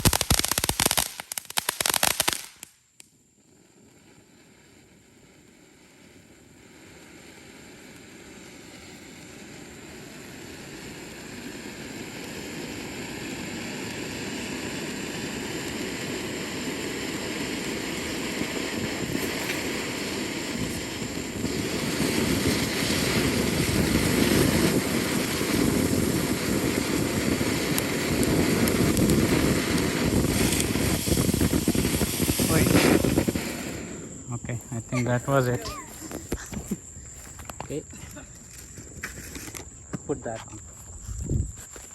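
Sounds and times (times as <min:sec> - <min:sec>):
firework hissing spray: 0:00.0 - 0:02.8, 0:03.5 - 0:39.8
firework crackling: 0:00.0 - 0:41.9.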